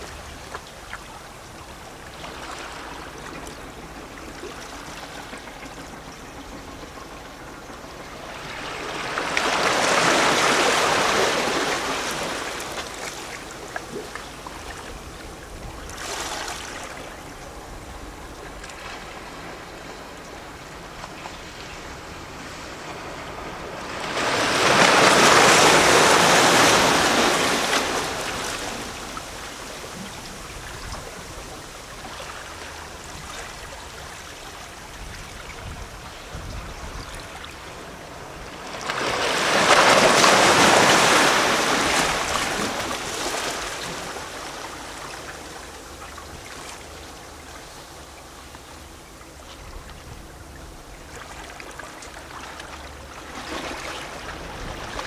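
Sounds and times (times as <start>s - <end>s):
waves washing on rocky shore: 8.2s - 46.0s.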